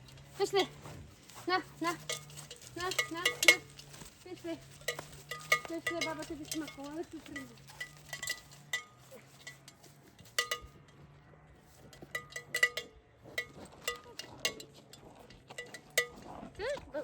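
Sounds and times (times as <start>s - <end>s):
light metallic clinks: 0.0s - 17.0s.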